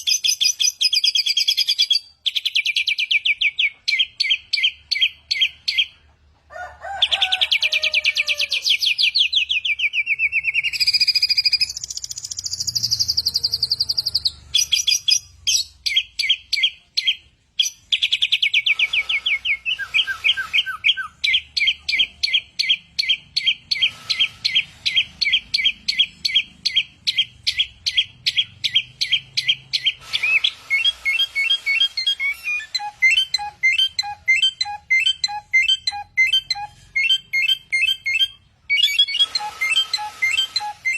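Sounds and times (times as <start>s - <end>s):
songbird chirping and trilling: 0.0s - 6.1s, 7.1s - 40.9s
sliding whistles: 18.1s - 40.9s.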